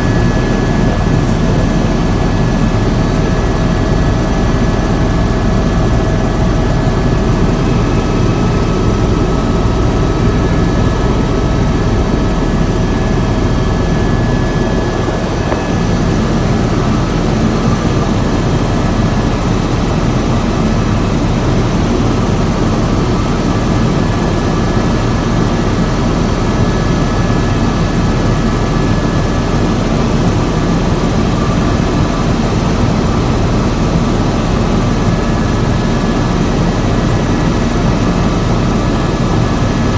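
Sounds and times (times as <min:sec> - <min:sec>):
high turbine whine: 0:00.0 - 0:29.4
helicopter rotor drone: 0:00.0 - 0:39.9.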